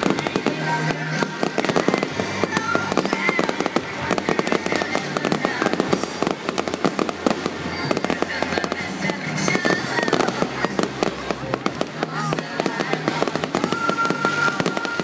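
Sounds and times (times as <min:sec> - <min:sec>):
fireworks crackling and banging: 0:00.0 - 0:15.0
loud music: 0:00.0 - 0:15.0
firework whistles: 0:13.0 - 0:15.0.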